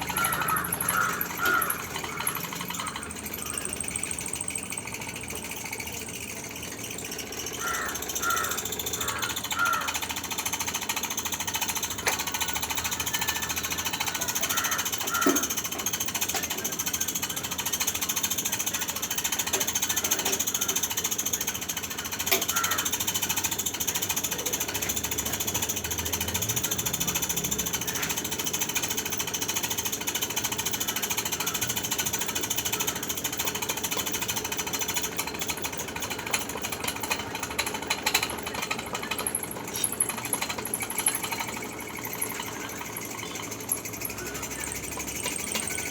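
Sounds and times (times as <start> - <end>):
small clicks and knocks: 9.2 - 18.2, 18.8 - 45.9.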